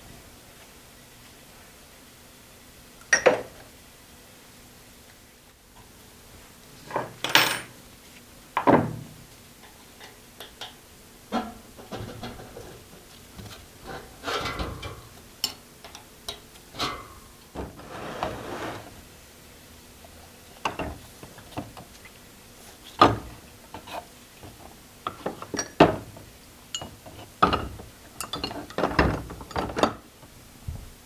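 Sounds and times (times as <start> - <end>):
metal scraping and rubbing: 17.6 - 19.1
metal parts clanking: 26.8 - 30.0.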